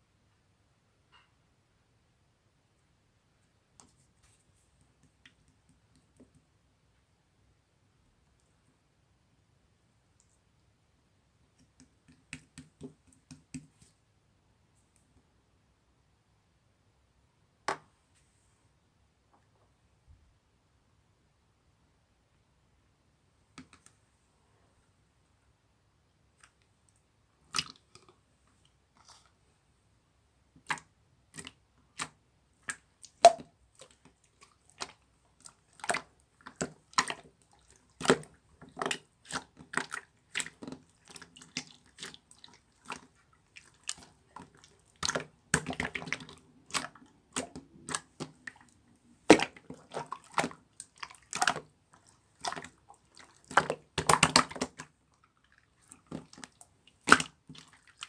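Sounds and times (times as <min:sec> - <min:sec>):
slime squishing and popping: 0:53.4 - 0:54.9.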